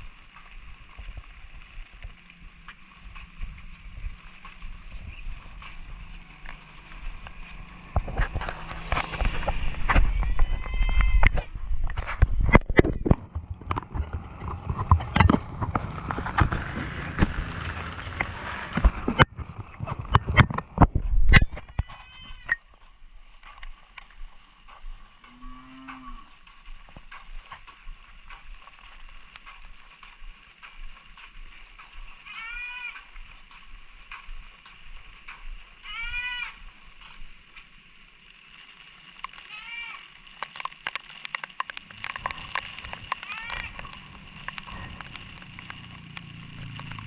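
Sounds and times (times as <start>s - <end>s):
water drips ticking: 0.0s - 21.0s, 22.5s - 47.0s
footsteps on hard surface: 0.0s - 38.0s, 40.3s - 47.0s
animal bleating: 9.3s - 11.5s, 21.6s - 22.6s, 32.3s - 33.0s, 35.9s - 36.6s, 39.5s - 40.0s, 43.2s - 43.8s
steady hiss: 22.8s - 46.8s.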